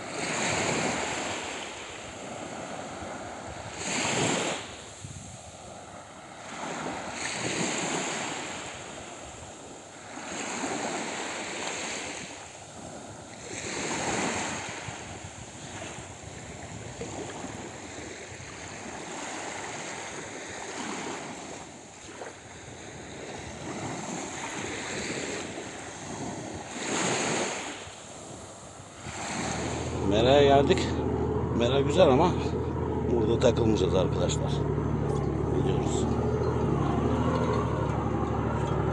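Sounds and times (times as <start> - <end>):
wind on microphone: 0.0 - 6.0, 12.1 - 33.7
sea waves washing ashore: 0.0 - 38.9.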